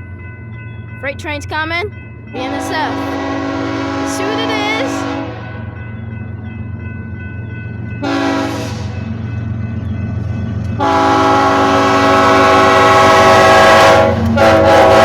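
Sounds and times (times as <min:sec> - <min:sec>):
train diesel engines rumbling: 0:00.0 - 0:15.0
locomotive air horn blasts: 0:02.5 - 0:05.6, 0:08.0 - 0:09.0, 0:10.8 - 0:15.0.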